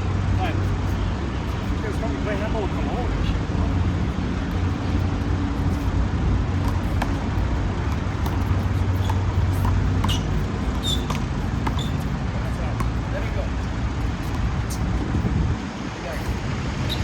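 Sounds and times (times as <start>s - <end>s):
city traffic rumble: 0.0s - 17.0s
short high squeaks: 8.4s - 12.1s, 14.6s - 14.9s, 16.8s - 17.0s.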